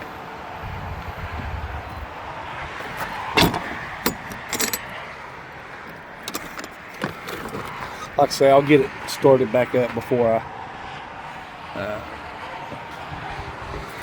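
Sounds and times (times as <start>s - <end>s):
outdoor background noise: 0.0s - 14.0s
sharp clicks and clinks: 3.4s - 5.0s, 6.2s - 7.4s.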